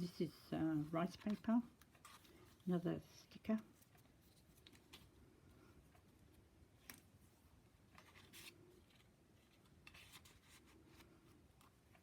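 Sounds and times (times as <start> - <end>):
paper pages rustling: 0.0 - 2.7, 3.3 - 5.2, 7.9 - 12.0.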